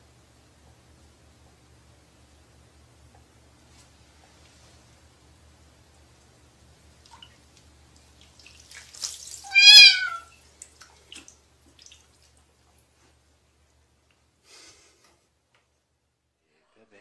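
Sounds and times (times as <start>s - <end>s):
cat meowing: 9.4s - 10.3s.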